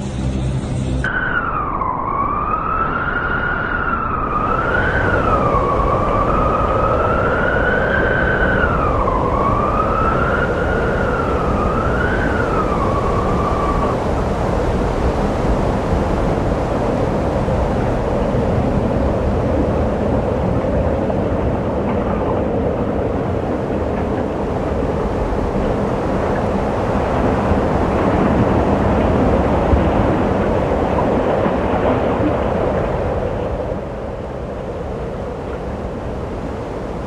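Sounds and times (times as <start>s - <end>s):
wavering high whistle: 0.0s - 14.0s
strong wind blowing: 0.0s - 37.0s.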